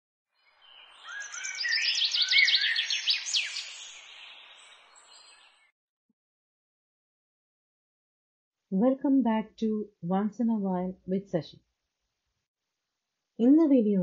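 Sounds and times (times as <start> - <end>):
birds chirping and whistling: 0.6 - 5.7.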